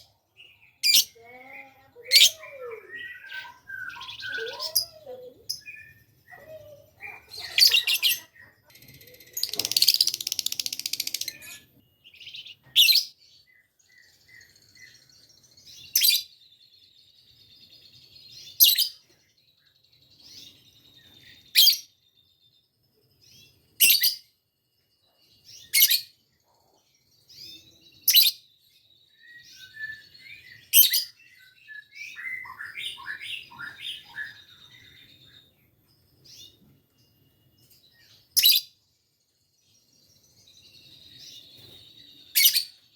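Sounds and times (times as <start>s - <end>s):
lovebird shrill chirps: 0.6s - 13.1s, 27.4s - 28.4s, 29.2s - 35.4s, 38.3s - 38.8s, 42.3s - 42.8s
lovebird chattering: 6.3s - 11.7s.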